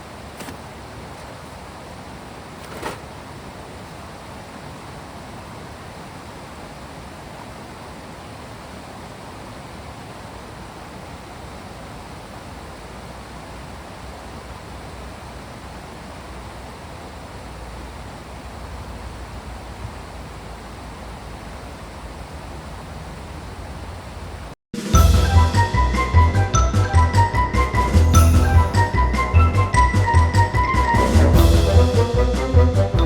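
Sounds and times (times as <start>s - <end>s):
rushing water: 0.0s - 26.2s.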